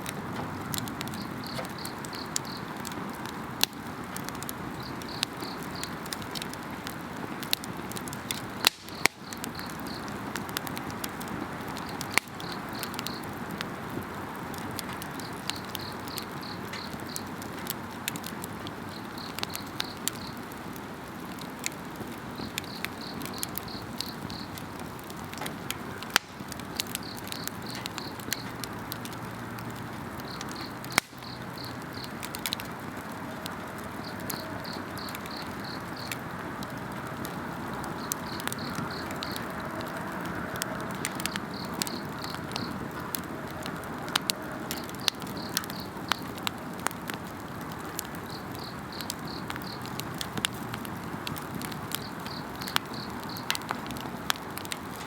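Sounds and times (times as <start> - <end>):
campfire crackling: 0.0 - 55.0
insects trilling: 1.0 - 2.8, 4.6 - 6.1, 8.6 - 10.2, 11.8 - 13.3, 15.1 - 17.4, 18.9 - 20.5, 22.3 - 24.6, 26.1 - 28.7, 30.2 - 32.2, 33.8 - 36.3, 37.9 - 42.9, 44.8 - 46.3, 48.2 - 50.0, 52.0 - 53.7.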